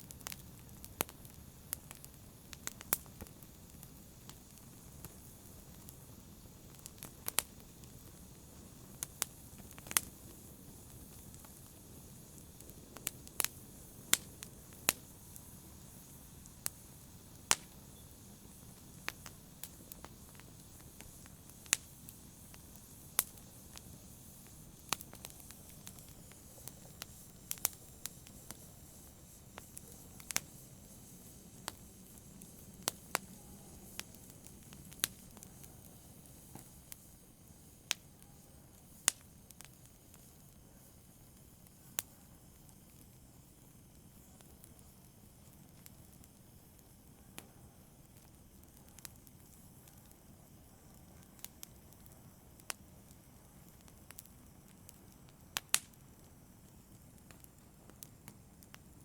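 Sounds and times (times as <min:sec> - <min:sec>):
fire crackling and popping: 0:00.0 - 0:59.0
low hiss of burning: 0:00.0 - 0:59.0.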